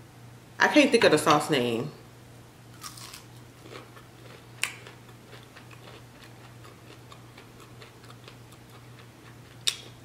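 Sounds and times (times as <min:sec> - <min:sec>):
low electrical hum: 0:00.0 - 0:10.0
chewing crunchy food: 0:02.7 - 0:10.0.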